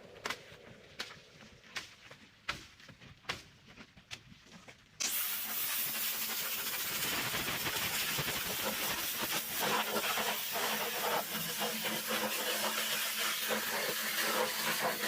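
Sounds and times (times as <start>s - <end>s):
pressure washer spray hissing: 5.0s - 15.0s.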